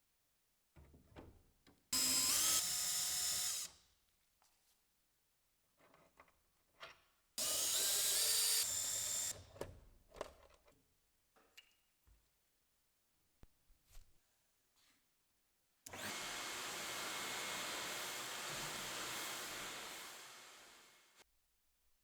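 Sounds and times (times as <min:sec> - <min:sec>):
electric drill whining: 0:02.0 - 0:03.7, 0:07.4 - 0:09.4, 0:15.9 - 0:21.2.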